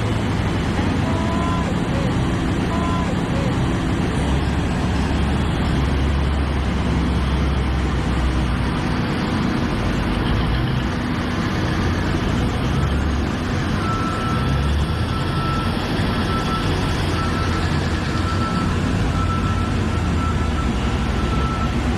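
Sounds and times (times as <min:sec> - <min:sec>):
excavator engine humming: 0:00.0 - 0:21.9
alarm beeping: 0:01.0 - 0:03.8, 0:13.8 - 0:21.9.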